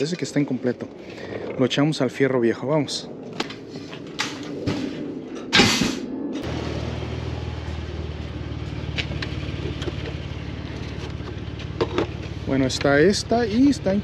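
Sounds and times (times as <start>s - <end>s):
loud slam: 4.7s - 6.1s
vehicle engine running: 6.4s - 14.0s.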